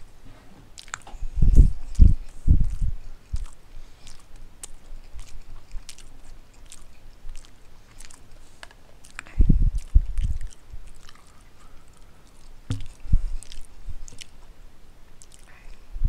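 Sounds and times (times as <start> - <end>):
person chewing noodles: 0.7 - 14.4, 15.2 - 15.6
low thump: 12.7 - 13.3.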